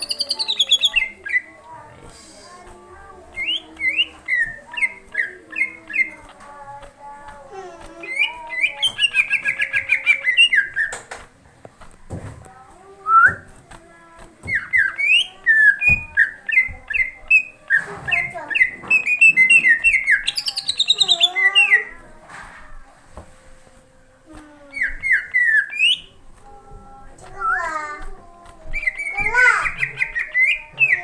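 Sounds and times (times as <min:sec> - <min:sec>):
sharp bird clicks: 0:00.0 - 0:01.5, 0:03.3 - 0:06.9, 0:14.4 - 0:21.9, 0:24.7 - 0:26.1
bird singing: 0:00.0 - 0:11.2, 0:12.6 - 0:22.7, 0:24.2 - 0:31.0.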